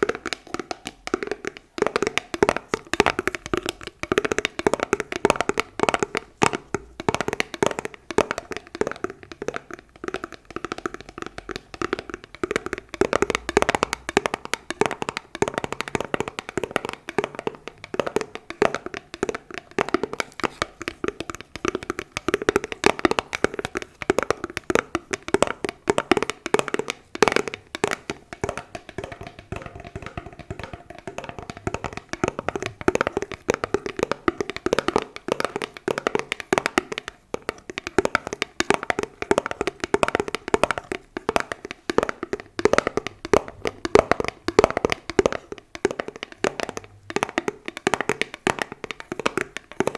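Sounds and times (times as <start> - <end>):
fingers tapping on hard objects: 0.0 - 49.9.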